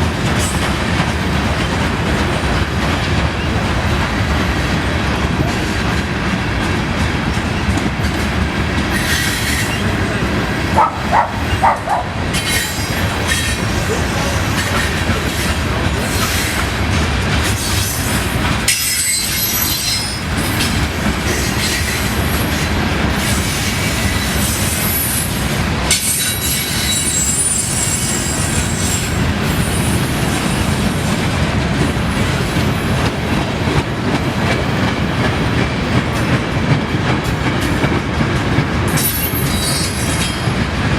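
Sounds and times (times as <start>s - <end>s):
train wheels clacking: 0.0s - 40.9s
high-pitched wheel squeal: 26.2s - 29.1s.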